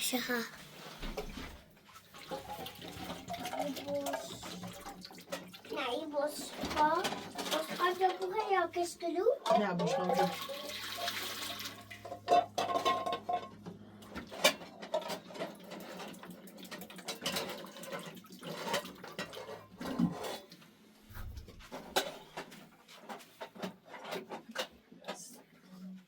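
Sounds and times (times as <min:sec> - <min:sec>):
dishes clinking: 0:09.4 - 0:11.2, 0:12.0 - 0:13.6.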